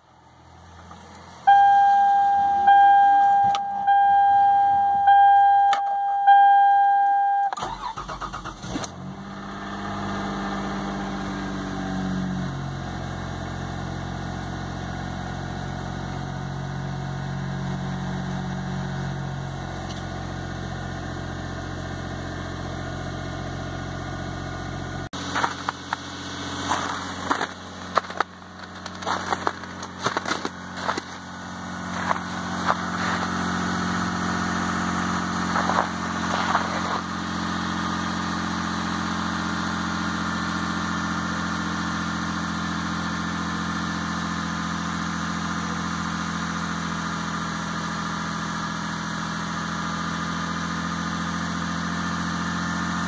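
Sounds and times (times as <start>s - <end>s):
car engine idling: 0.0s - 53.0s
footsteps in snow: 25.2s - 33.6s, 35.1s - 37.1s.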